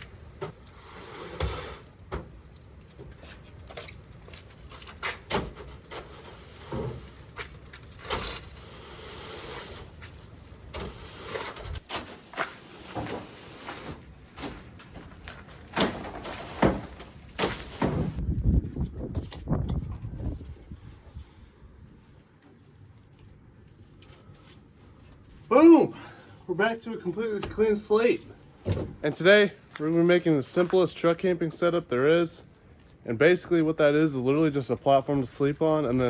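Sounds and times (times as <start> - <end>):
scraping and rustling: 0.4 - 22.6
knocks and thumps: 28.6 - 29.0.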